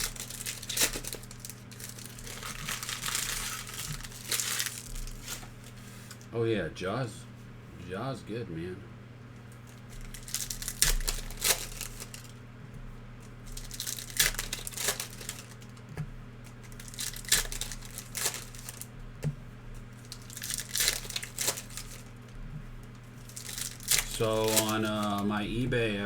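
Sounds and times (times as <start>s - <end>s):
foil wrappers tearing and crinkling: 0.0s - 6.3s, 9.5s - 12.4s, 13.2s - 18.9s, 19.8s - 25.3s
steady low hum: 0.0s - 26.0s.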